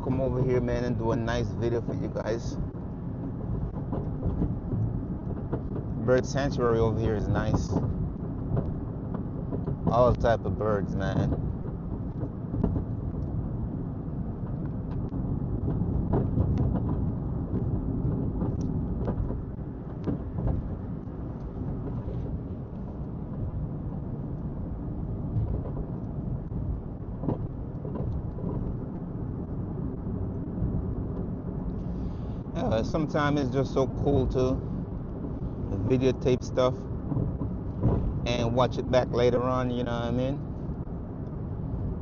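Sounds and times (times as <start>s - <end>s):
car tyres and engine rumble: 0.0s - 42.0s.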